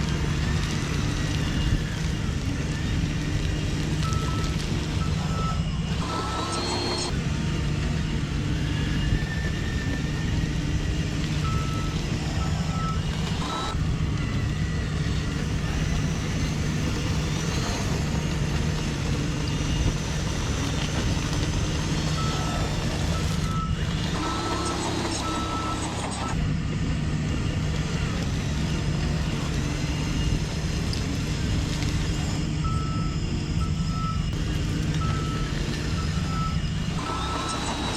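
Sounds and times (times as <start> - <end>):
reversing beeper beeps: 0.0 - 26.5, 27.1 - 37.9
toy truck motor hum: 0.0 - 37.9.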